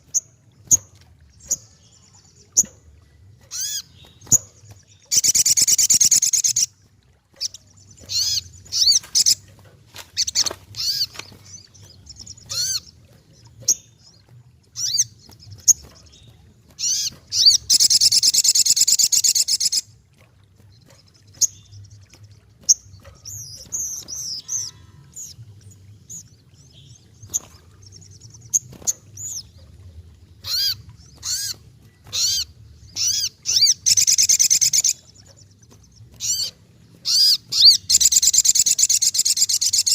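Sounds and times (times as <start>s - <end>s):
bird trilling: 3.4s - 6.8s, 7.4s - 9.5s, 10.2s - 12.9s, 16.8s - 19.9s, 22.7s - 25.4s, 30.4s - 35.5s, 36.1s - 39.9s.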